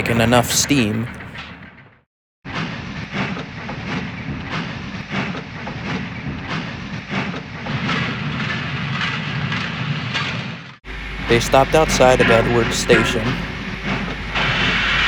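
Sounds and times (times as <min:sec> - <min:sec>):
steam locomotive chuffing: 0:10.9 - 0:15.0.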